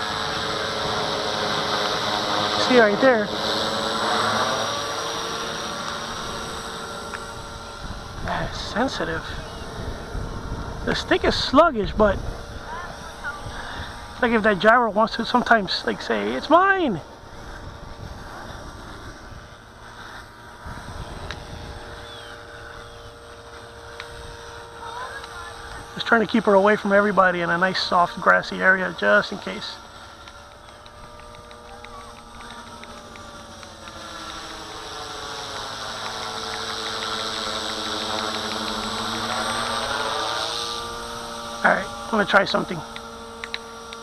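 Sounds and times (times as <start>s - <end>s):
rc helicopter rotor hum: 0.0s - 44.0s
wind rumble on microphone: 7.3s - 14.2s, 17.3s - 22.0s.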